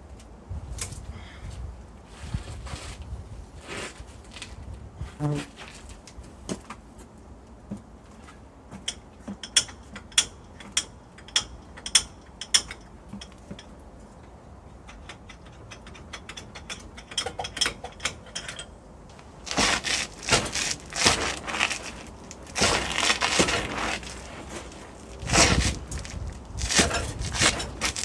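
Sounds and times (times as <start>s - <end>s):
harsh rough scraping: 19.1s - 28.0s.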